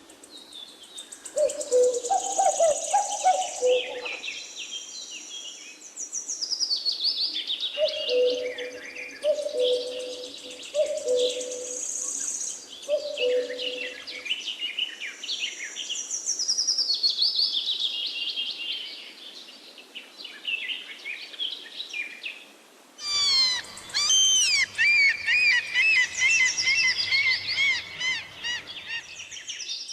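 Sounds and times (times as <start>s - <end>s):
small birds chirping and singing: 0.0s - 22.2s, 23.0s - 29.9s
low hooting notes: 23.0s - 29.3s.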